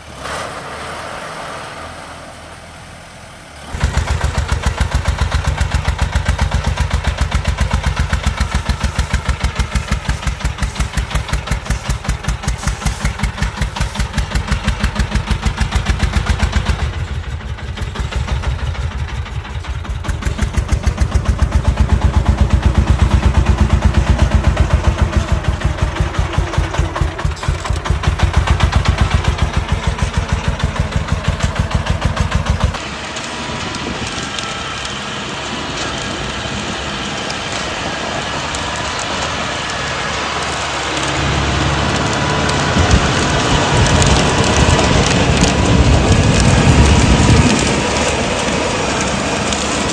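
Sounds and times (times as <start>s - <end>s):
diesel engine chugging: 0.0s - 49.9s
steady hiss: 6.0s - 15.3s.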